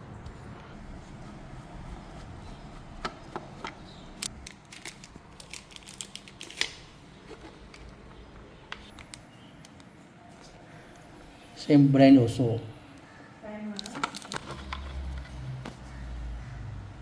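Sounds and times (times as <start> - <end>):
small parts clicking and tapping: 13.7 - 15.3.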